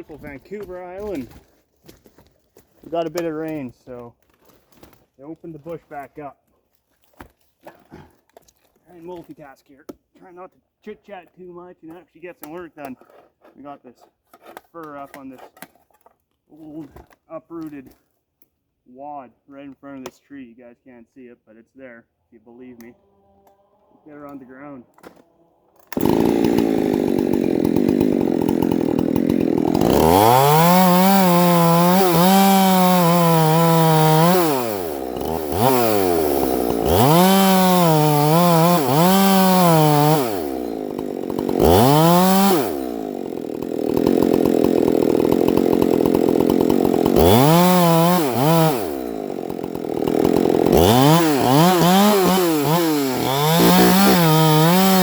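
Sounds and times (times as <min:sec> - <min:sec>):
chainsaw cutting wood: 0:24.1 - 0:55.0.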